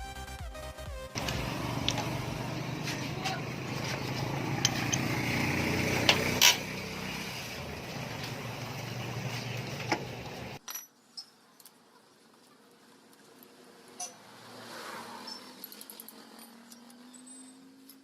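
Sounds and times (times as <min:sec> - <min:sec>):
steady mechanical rumble: 0:01.2 - 0:10.6
metallic clinks of tools: 0:14.0 - 0:14.2, 0:15.2 - 0:18.0.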